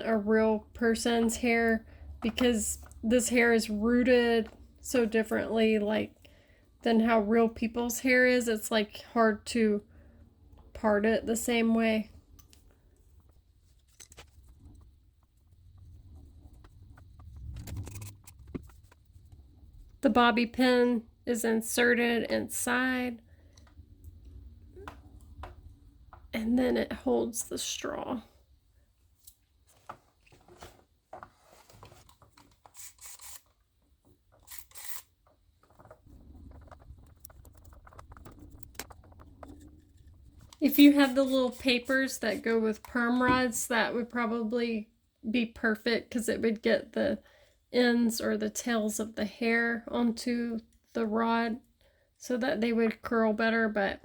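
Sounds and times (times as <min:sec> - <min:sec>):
low rumble: 0:14.5 - 0:20.0, 0:36.1 - 0:40.6
rustling: 0:29.2 - 0:33.5, 0:35.6 - 0:42.4.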